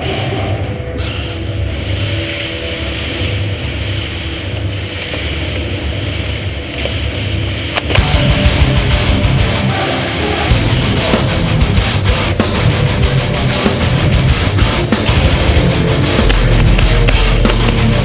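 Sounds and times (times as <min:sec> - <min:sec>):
heavy metal music with electric guitar: 0:07.9 - 0:18.0.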